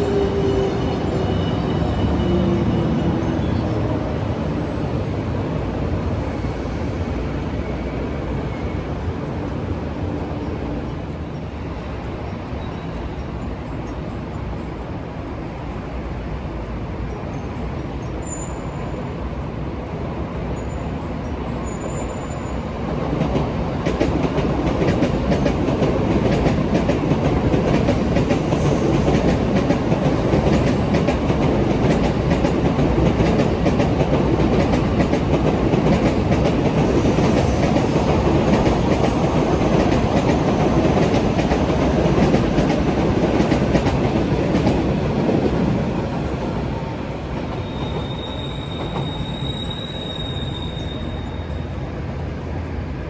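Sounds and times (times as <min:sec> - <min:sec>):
train rumble passing: 0:00.0 - 0:53.0
brief high squeaks: 0:47.6 - 0:51.7.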